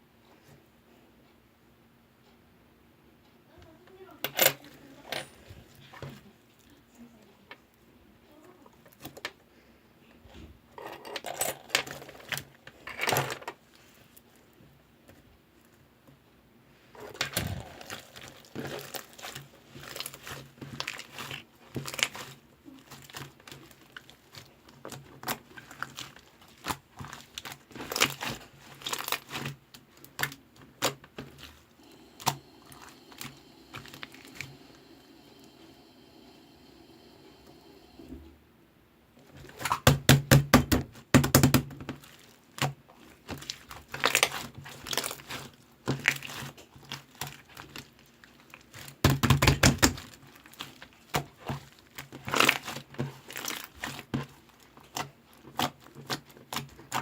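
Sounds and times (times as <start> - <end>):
slime squished by hand: 17.1 - 34.7, 39.4 - 57.0.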